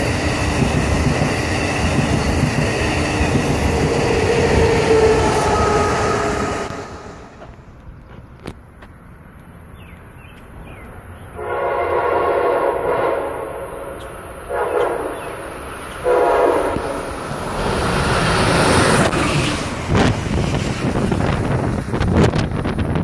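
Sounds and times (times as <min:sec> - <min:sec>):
train rushing past: 0:00.0 - 0:08.2, 0:10.9 - 0:23.0
train horn blasts: 0:03.6 - 0:07.4, 0:11.4 - 0:17.1.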